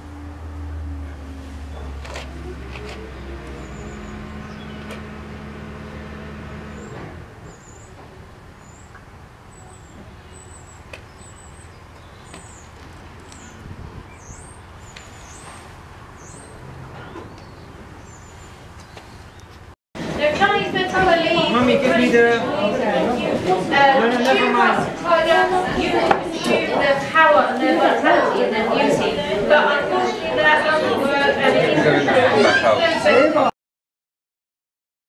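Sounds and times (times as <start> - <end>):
low mechanical hum: 0.0 - 23.9.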